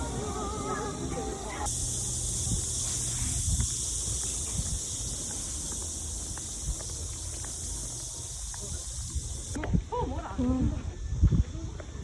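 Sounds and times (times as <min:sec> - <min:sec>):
cicadas buzzing: 0:00.0 - 0:09.7
wind rumble on microphone: 0:01.6 - 0:12.0
faint footstep-like clicks: 0:03.6 - 0:09.8.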